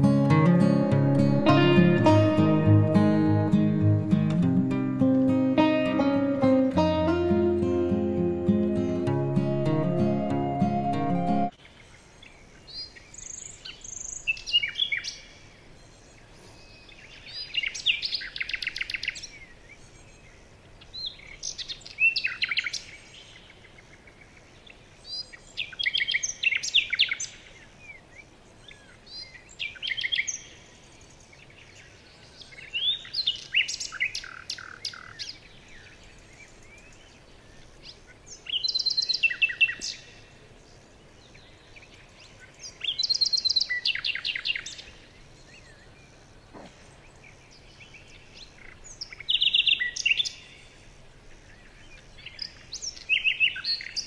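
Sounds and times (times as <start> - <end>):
songbird whistles and trills: 7.8 - 11.5.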